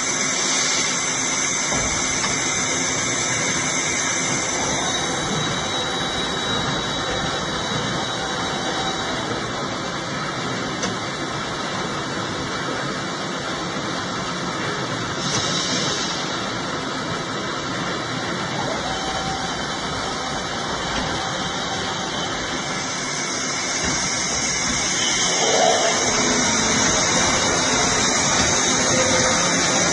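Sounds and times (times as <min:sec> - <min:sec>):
heavy machinery running: 0:00.0 - 0:29.9
high hiss: 0:22.5 - 0:29.9.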